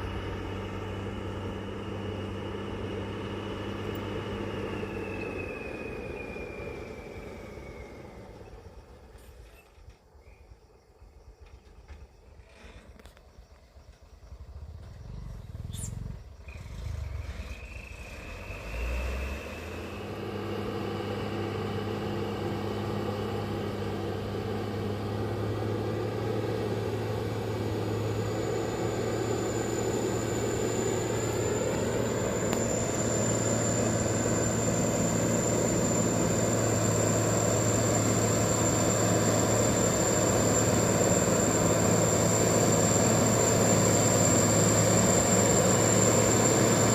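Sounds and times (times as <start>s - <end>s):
diesel engine running: 0.0s - 10.0s, 11.1s - 46.9s
thin high whine: 27.9s - 46.9s.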